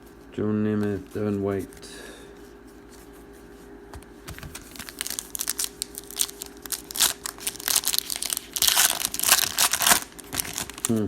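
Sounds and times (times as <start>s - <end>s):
plastic wrapper crinkling and tearing: 4.5s - 11.0s.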